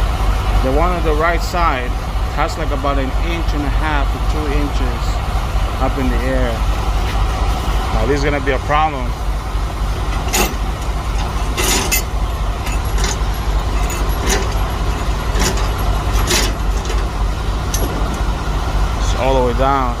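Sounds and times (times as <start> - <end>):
diesel engine idling: 0.0 - 20.0
metallic clicks and rattles: 10.0 - 18.3.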